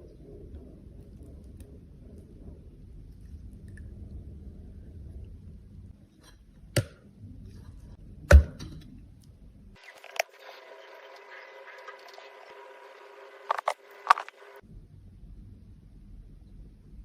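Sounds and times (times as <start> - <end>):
low rumble: 0.0 - 6.1.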